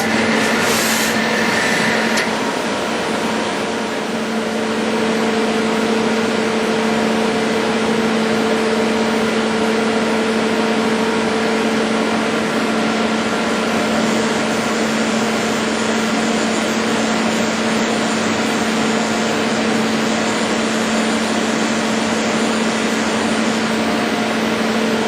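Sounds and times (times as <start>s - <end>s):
lathe machine hum with hiss: 0.0s - 25.0s.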